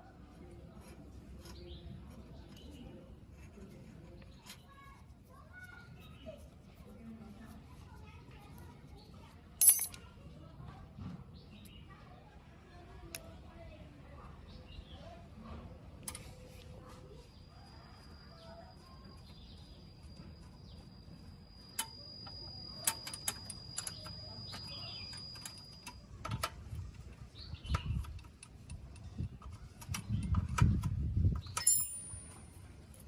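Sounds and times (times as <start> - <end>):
metal parts clicking: 9.6 - 10.0, 21.7 - 27.0, 31.4 - 33.0
ringing metallic clink: 9.6 - 10.0, 31.6 - 32.6.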